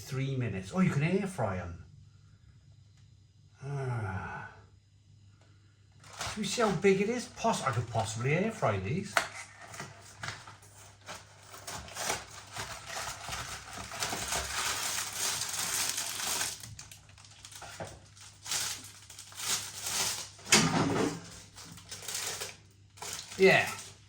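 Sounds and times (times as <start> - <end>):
food packaging rustling: 6.0 - 6.9, 9.2 - 24.0.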